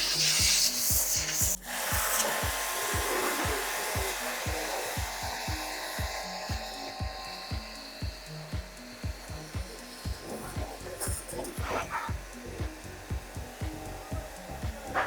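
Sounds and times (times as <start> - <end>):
background music with steady beat: 0.0 - 15.0
pressure washer spraying: 0.0 - 15.0.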